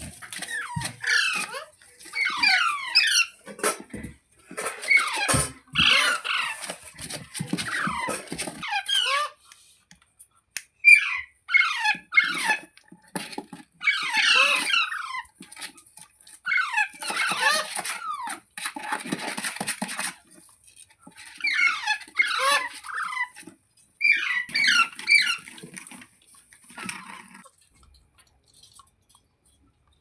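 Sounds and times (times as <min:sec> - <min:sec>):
parrot squawking and chattering: 0:00.0 - 0:03.8, 0:04.7 - 0:09.4, 0:10.8 - 0:12.7, 0:21.4 - 0:23.4.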